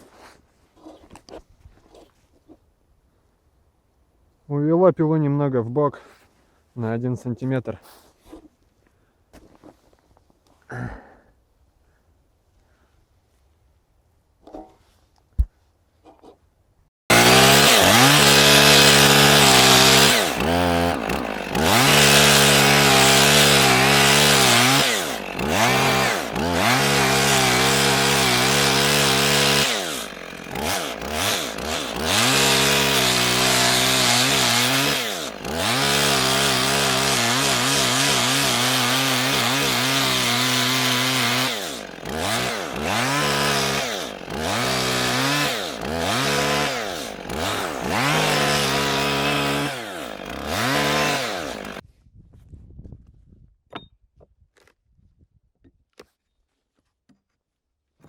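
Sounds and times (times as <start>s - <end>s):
chainsaw cutting log: 17.1s - 51.8s.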